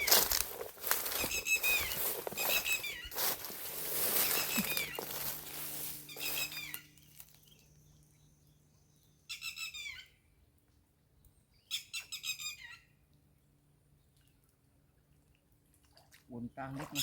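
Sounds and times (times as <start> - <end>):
high chirping animal calls: 1.1 - 7.3
noisy hiss: 3.1 - 7.3.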